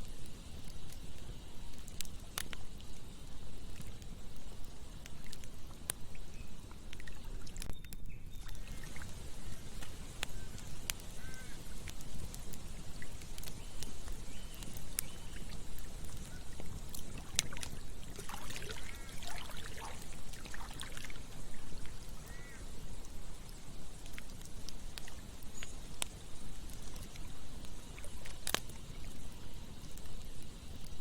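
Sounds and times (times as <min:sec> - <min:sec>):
campfire crackling and popping: 0:00.0 - 0:31.0
flowing stream: 0:08.5 - 0:23.3
short animal calls: 0:11.1 - 0:11.6.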